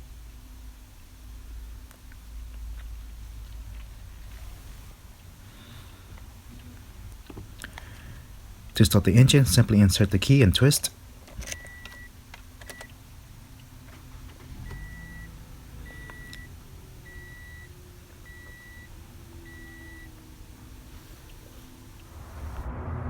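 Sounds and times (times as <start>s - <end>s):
dashboard warning chime beeping: 8.8s - 22.1s
key clicks: 10.7s - 13.0s.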